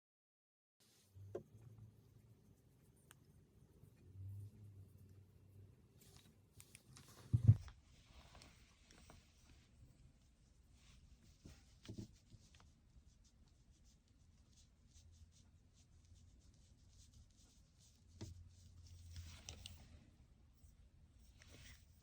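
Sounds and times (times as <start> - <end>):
soft knock: 7.3 - 7.7
brush strokes on paper: 7.9 - 22.0.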